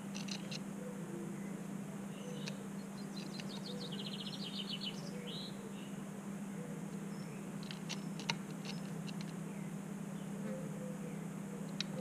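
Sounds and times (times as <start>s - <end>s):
steady low hum: 0.0s - 12.0s
songbird trilling: 0.2s - 5.9s.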